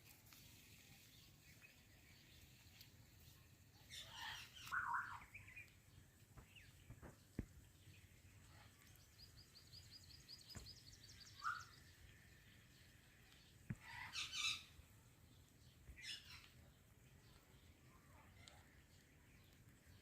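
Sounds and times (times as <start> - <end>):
parrot chirping trill: 3.9 - 5.5, 11.4 - 11.8, 13.8 - 14.8.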